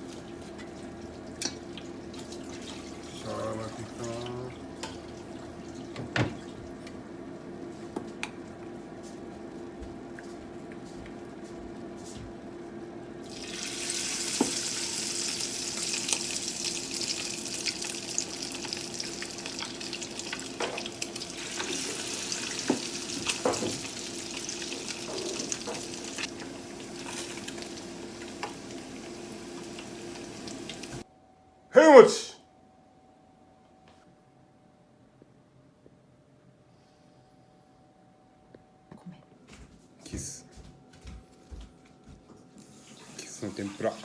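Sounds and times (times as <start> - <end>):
fish sizzling in hot oil: 13.3 - 31.0.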